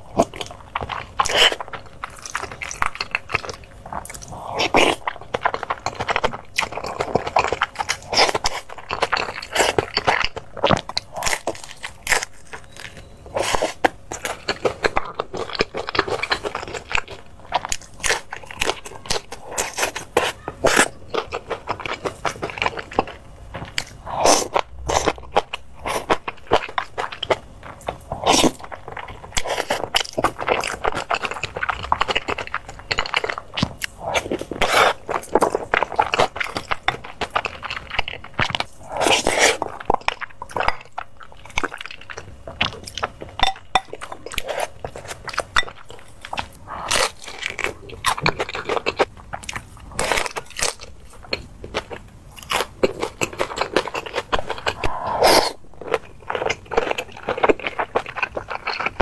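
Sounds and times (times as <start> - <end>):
crunchy chewing: 0.0 - 59.0.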